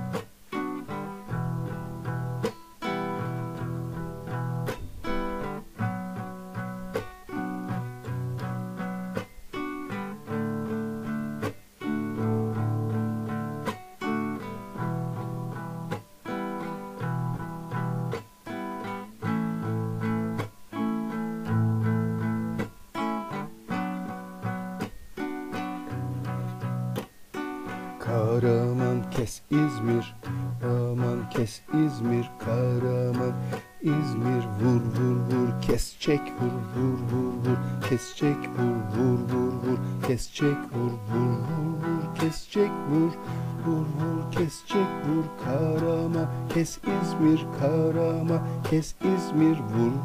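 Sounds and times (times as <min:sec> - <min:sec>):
acoustic guitar strumming: 0:00.0 - 0:50.0.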